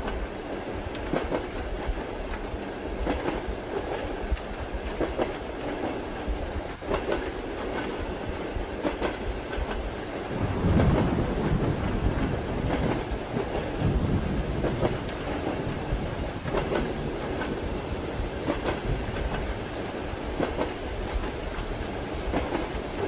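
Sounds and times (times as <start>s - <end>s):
train carriage rumbling: 0.0s - 23.0s
wheels clicking over rail joints: 8.8s - 23.0s
deep loud rumble: 10.3s - 15.0s.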